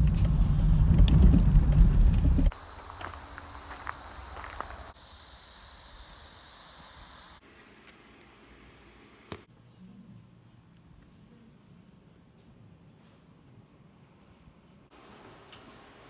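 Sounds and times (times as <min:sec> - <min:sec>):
car driving rumble: 0:00.0 - 0:02.6
insects buzzing: 0:00.0 - 0:07.4.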